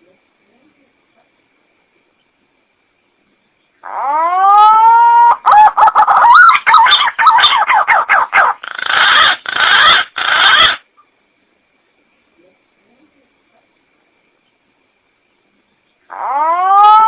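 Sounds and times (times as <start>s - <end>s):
pigeon calling: 3.8s - 10.8s, 16.1s - 17.0s.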